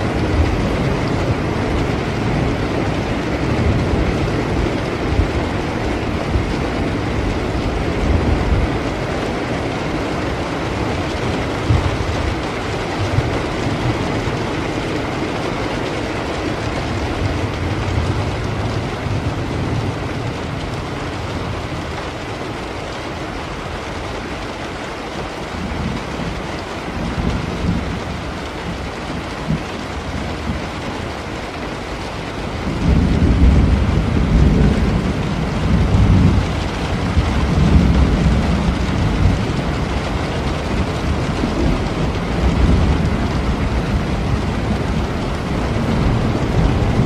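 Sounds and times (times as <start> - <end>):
steady rain: 0.0 - 47.0
thunder rumbling: 0.0 - 47.0.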